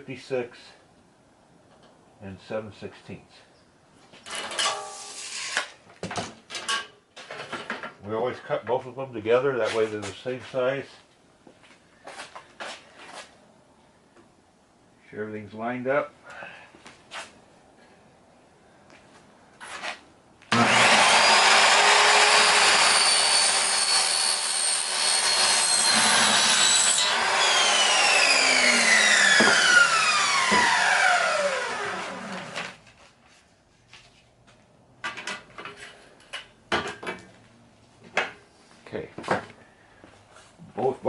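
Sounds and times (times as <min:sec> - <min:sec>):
power saw whining: 0:20.5 - 0:32.8.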